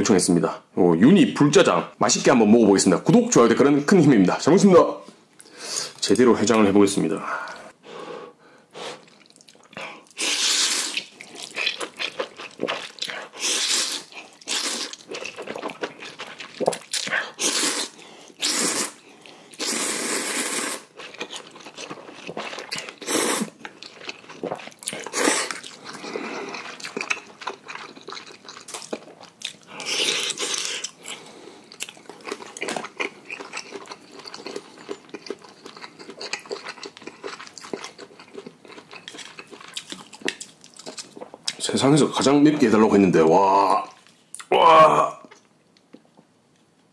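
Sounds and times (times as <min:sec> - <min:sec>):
wet chewing: 0:09.0 - 0:19.7, 0:20.6 - 0:41.6
person slurping noodles: 0:09.8 - 0:11.8, 0:12.4 - 0:21.0, 0:22.3 - 0:23.6, 0:24.3 - 0:26.8.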